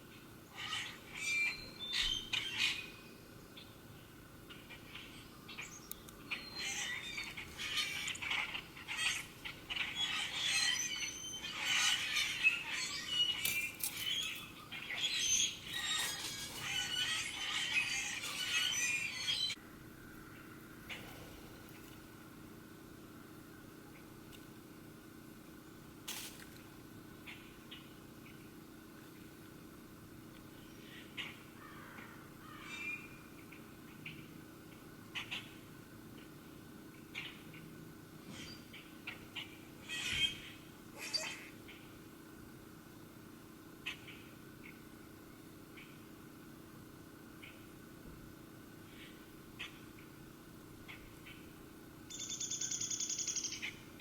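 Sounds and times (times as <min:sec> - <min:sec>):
wild birds chirping: 0:00.0 - 0:26.0, 0:26.7 - 0:54.0
low background hum: 0:00.0 - 0:54.0
bird chips: 0:04.9 - 0:19.6.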